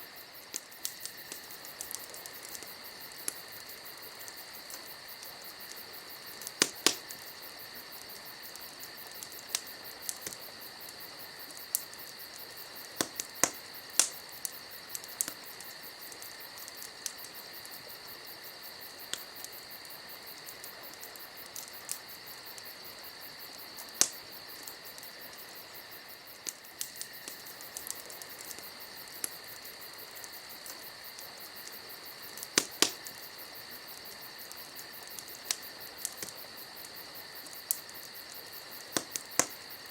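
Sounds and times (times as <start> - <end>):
campfire crackling: 0.0 - 39.9
crickets chirping: 0.0 - 39.9
wood pops: 32.6 - 33.0.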